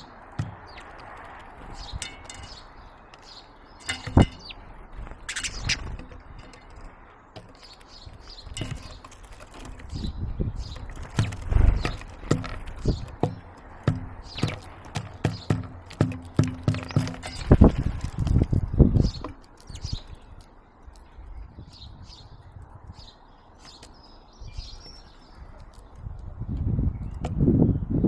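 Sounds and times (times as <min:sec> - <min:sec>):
birds pecking on wood: 0:00.0 - 0:21.9, 0:23.5 - 0:27.4
faint bird chirps: 0:05.2 - 0:05.9.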